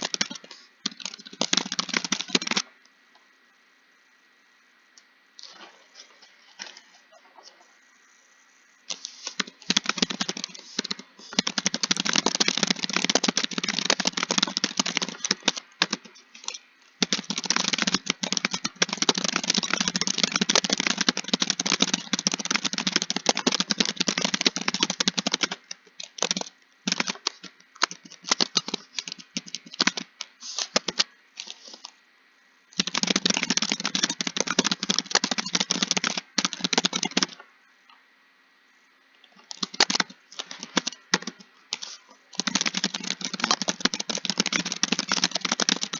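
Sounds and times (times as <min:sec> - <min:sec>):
fast typing on a keyboard: 0:00.0 - 0:02.7, 0:08.9 - 0:31.6, 0:32.8 - 0:37.4, 0:39.5 - 0:45.9.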